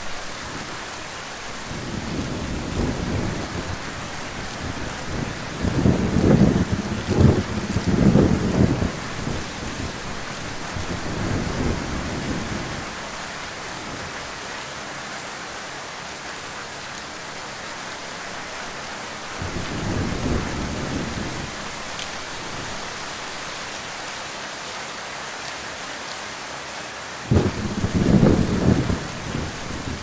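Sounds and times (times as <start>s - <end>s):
heavy rain falling: 0.0s - 30.0s
thunder rumbling: 1.7s - 13.0s, 19.4s - 22.8s, 27.3s - 30.0s.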